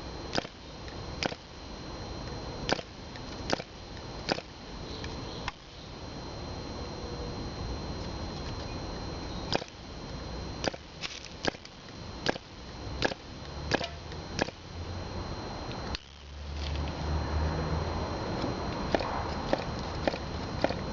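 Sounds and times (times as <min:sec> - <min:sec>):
model airplane engine popping: 0:00.3 - 0:01.4, 0:02.7 - 0:05.6, 0:10.6 - 0:12.4, 0:18.8 - 0:20.8.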